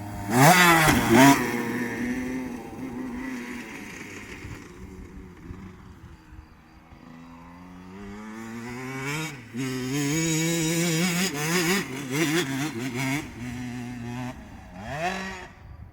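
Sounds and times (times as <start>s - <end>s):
motocross bike engine revving: 0.0s - 15.6s.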